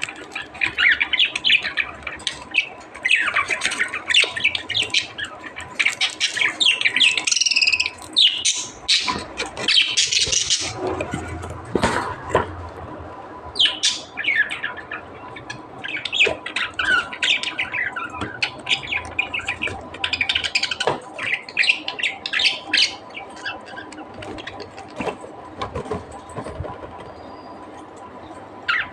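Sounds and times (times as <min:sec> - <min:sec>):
budgerigars chattering: 0:00.1 - 0:10.8, 0:13.6 - 0:24.7.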